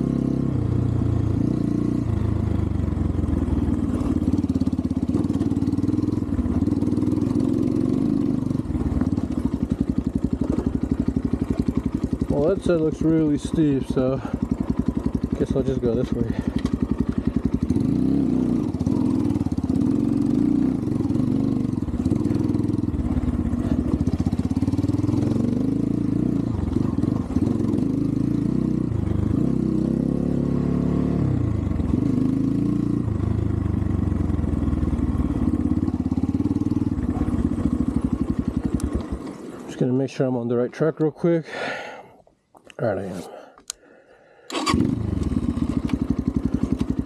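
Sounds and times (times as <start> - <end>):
dirt bike engine revving: 0.0 - 39.8, 44.5 - 47.0.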